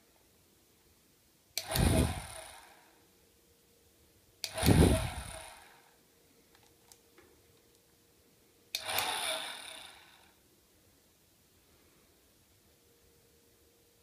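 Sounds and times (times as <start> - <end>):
hairdryer rush of air and whine: 1.6 - 2.6, 4.5 - 5.7.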